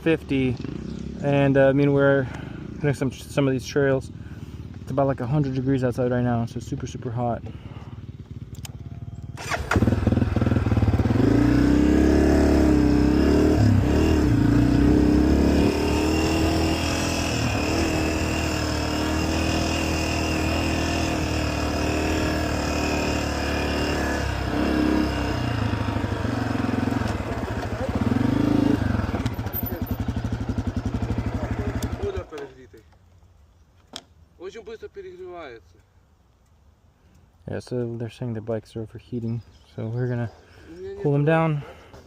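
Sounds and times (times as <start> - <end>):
dirt bike engine revving: 0.0 - 3.4, 7.6 - 32.2.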